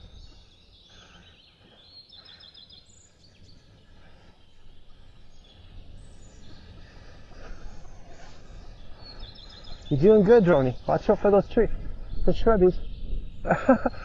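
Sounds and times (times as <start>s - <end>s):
songbirds chirping: 0.0s - 14.0s
wind rumbling on microphone: 2.9s - 14.0s.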